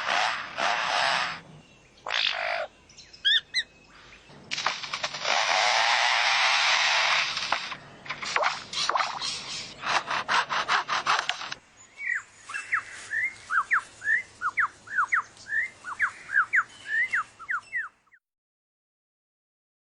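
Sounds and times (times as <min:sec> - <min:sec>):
lyrebird mimicking a chainsaw: 0:00.0 - 0:01.5, 0:02.1 - 0:02.7, 0:04.6 - 0:11.6
bird whistling: 0:03.0 - 0:03.8, 0:12.0 - 0:18.2.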